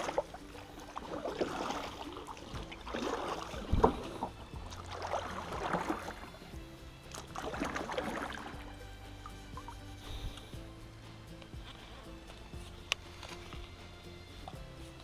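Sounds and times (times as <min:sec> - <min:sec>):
paddle splashing through water: 0:00.0 - 0:10.7.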